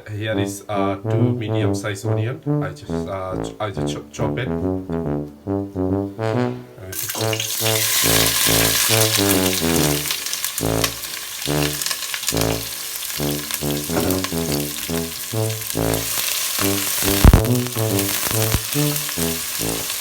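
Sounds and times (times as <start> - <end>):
background music with brass: 0.0 - 20.0
onions sizzling in hot oil: 7.0 - 15.3, 16.0 - 20.0.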